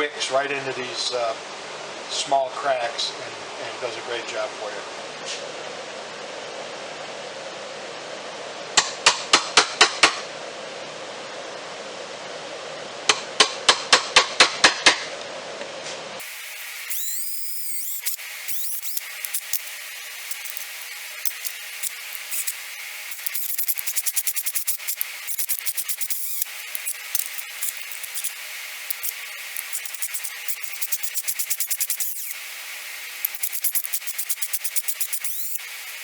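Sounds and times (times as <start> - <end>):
shop hum: 14.8 - 36.0.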